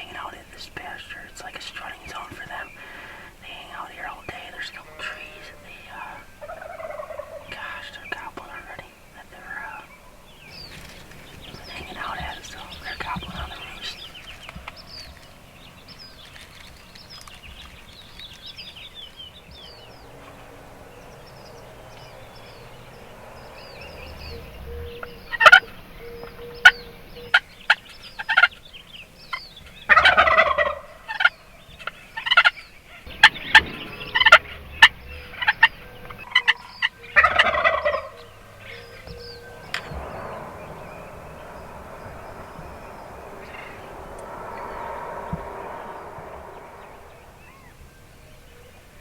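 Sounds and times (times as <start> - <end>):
turkeys gobbling: 2.8 - 8.7, 19.8 - 28.6, 29.9 - 44.2.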